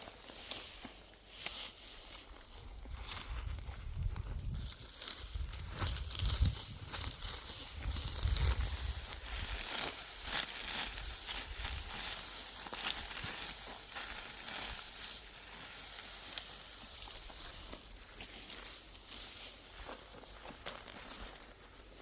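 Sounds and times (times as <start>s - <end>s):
dry crackling and rustling: 0.0s - 22.0s
wind rumble on microphone: 2.6s - 9.6s.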